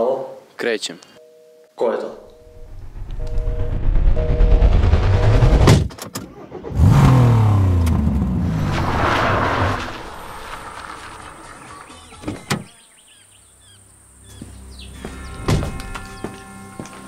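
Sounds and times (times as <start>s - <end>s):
car engine revving: 2.4s - 11.9s.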